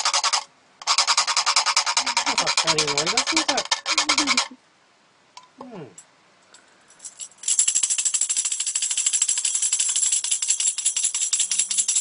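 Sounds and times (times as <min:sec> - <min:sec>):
metal jingles shaken: 0:06.9 - 0:12.0.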